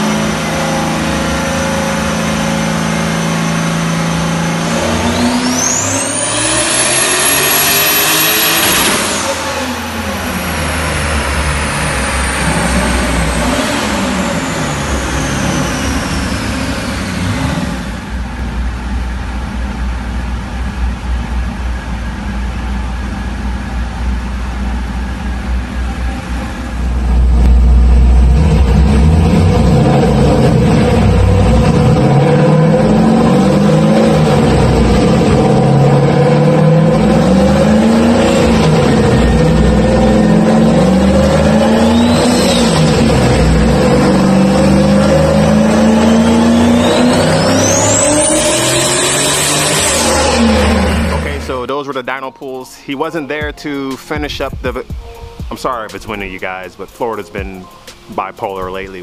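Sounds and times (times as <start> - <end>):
engine full-throttle pull: 0.0 - 52.1
high turbo whine: 0.0 - 59.0
deep low rumble: 8.7 - 46.5, 49.7 - 51.7.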